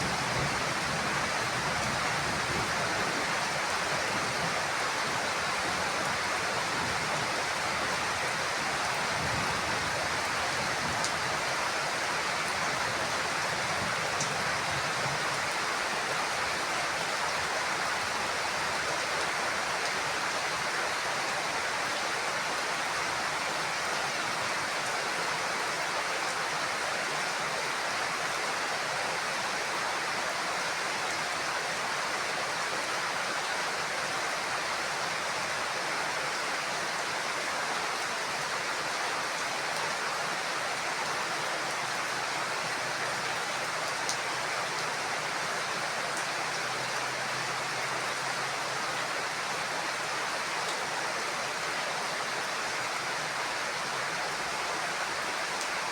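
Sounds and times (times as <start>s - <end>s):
heavy rain on a roof: 0.0s - 55.9s.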